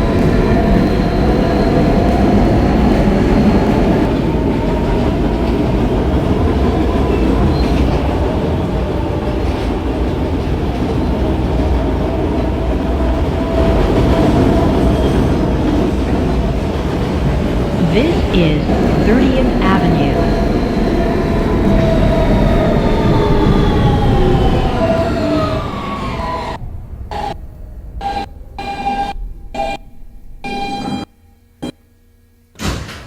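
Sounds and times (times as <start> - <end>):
subway wheel and track rumble: 0.0 - 17.9, 20.2 - 28.6.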